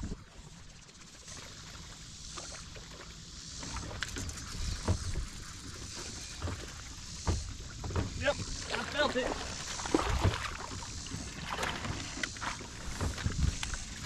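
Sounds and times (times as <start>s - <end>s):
wind rumble on microphone: 9.9s - 14.0s.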